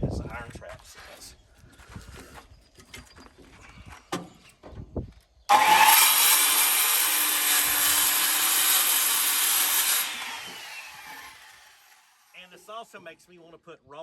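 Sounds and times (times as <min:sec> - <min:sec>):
circular saw cutting wood: 0:05.5 - 0:12.8.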